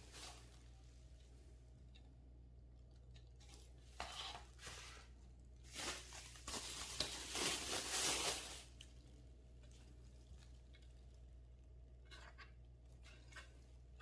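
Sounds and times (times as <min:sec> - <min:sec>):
plastic packaging rustling and tearing: 0:03.4 - 0:09.0.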